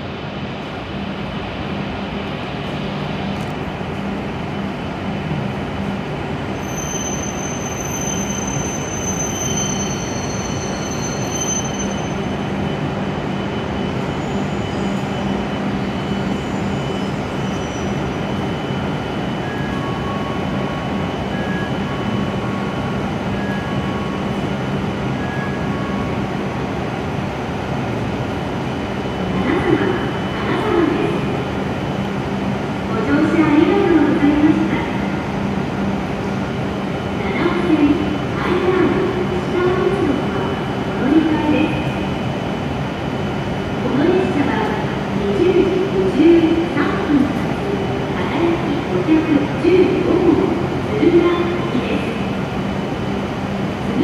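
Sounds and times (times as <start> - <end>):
brake squeal: 6.6 - 12.3.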